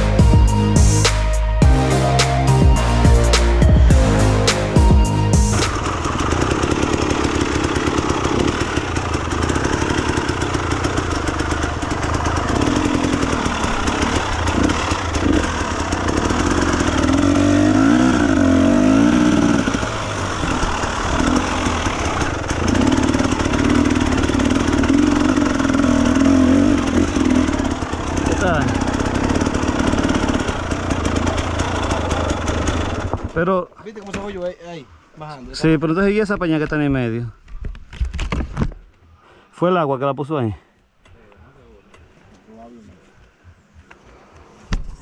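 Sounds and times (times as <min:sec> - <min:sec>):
dirt bike engine revving: 0:00.0 - 0:33.3.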